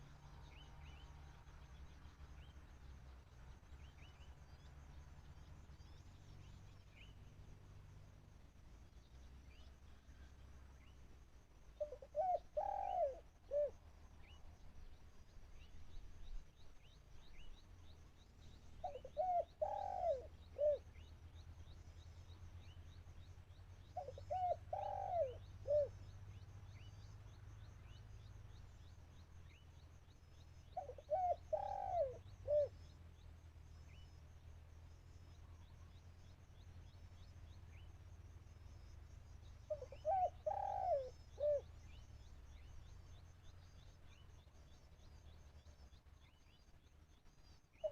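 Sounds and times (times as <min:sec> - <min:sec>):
dove cooing: 0:11.8 - 0:13.8, 0:18.8 - 0:20.9, 0:24.0 - 0:26.0, 0:30.8 - 0:32.8, 0:39.7 - 0:41.7.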